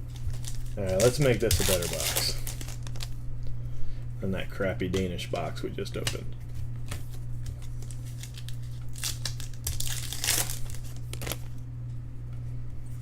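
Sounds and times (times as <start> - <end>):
card pack wrappers crinkling and tearing: 0.0 - 3.2, 6.8 - 11.6.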